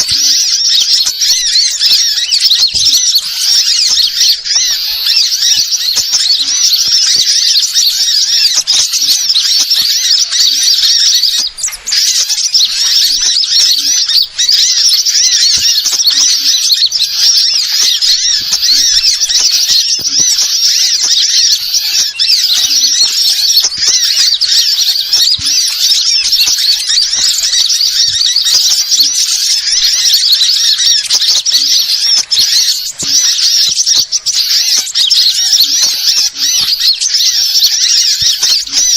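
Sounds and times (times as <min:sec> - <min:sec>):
songbirds twittering: 0:00.0 - 0:38.9.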